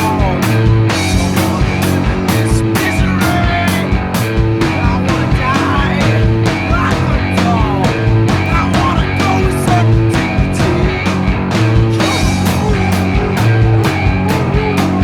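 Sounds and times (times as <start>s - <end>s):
bass guitars: 0.0s - 15.0s
drum kit with cymbal strikes: 0.0s - 15.0s
rock band playing: 0.0s - 15.0s.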